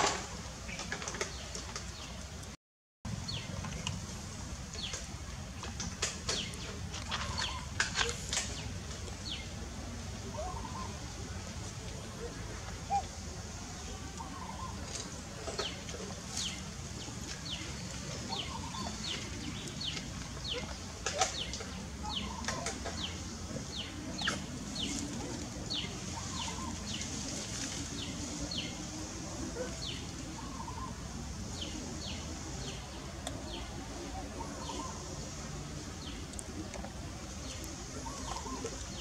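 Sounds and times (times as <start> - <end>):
low background noise: 0.0 - 39.0
birds chirping: 5.9 - 9.6, 11.8 - 39.0.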